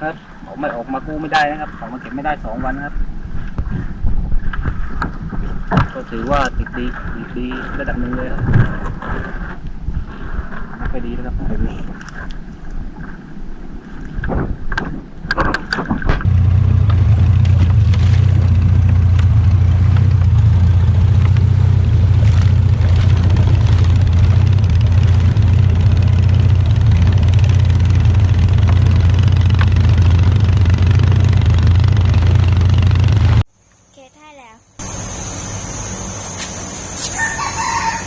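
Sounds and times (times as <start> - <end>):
boat engine droning: 0.0 - 33.4, 34.8 - 38.0
knocks and clatter: 14.2 - 33.4.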